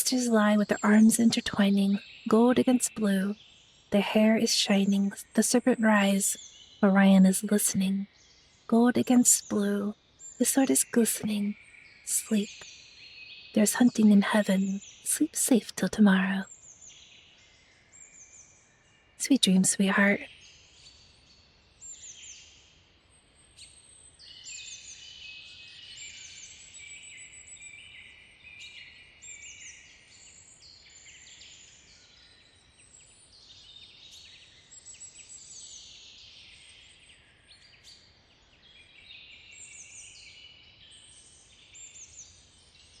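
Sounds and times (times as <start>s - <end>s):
birds chirping and twittering: 0.0s - 18.7s.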